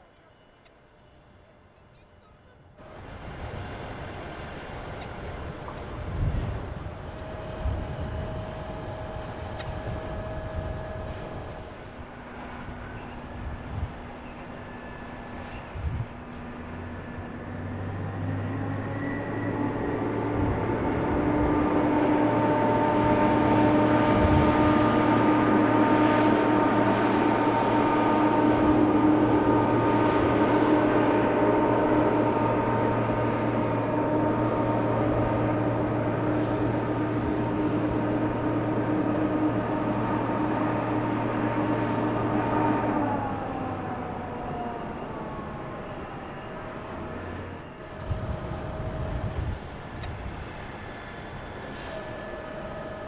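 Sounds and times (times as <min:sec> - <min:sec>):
jet engines whining: 0:02.8 - 0:12.4, 0:47.8 - 0:53.0.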